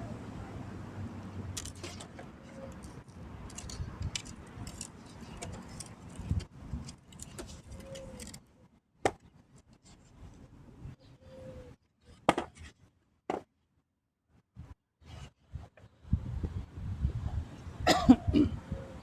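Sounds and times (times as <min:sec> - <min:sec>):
light jingling rattles: 0:01.4 - 0:08.4.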